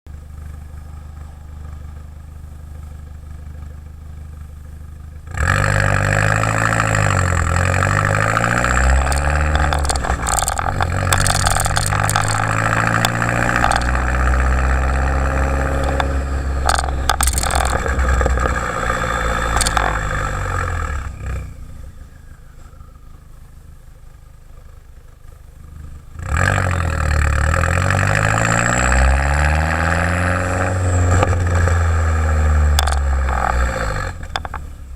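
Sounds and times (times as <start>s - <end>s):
car exhaust idling and revving: 0.1s - 34.9s
sharp exhaust cracks: 5.3s - 22.9s, 26.2s - 34.9s.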